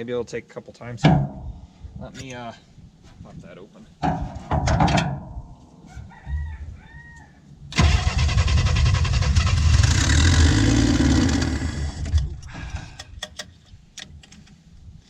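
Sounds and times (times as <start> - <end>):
engine running rough: 7.8 - 12.4
engine cranking: 7.8 - 13.6.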